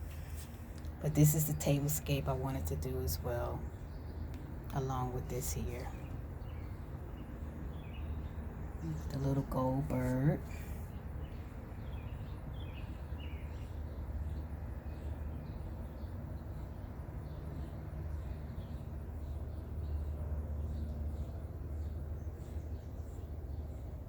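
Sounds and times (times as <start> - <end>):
steady low rumble: 0.0 - 12.4
faint birds chirping: 0.0 - 24.0.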